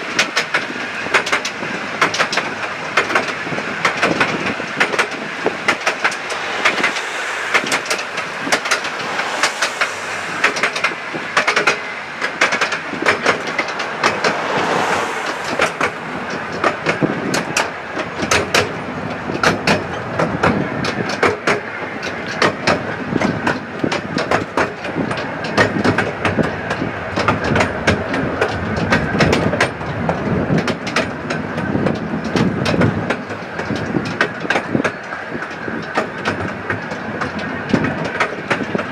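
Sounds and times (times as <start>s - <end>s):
train rolling rumble: 2.2s - 20.5s.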